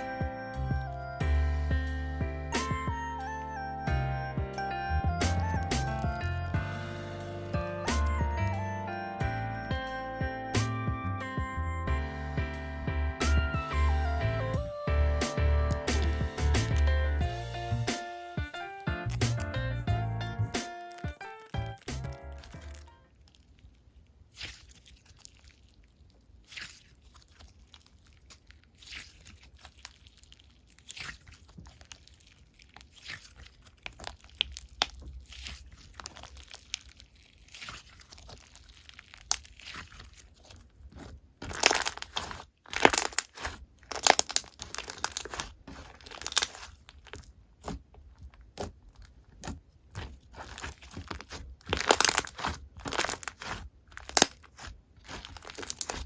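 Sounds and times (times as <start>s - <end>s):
hands kneading crackling slime: 4.9s - 6.6s, 15.3s - 18.0s, 18.8s - 56.0s.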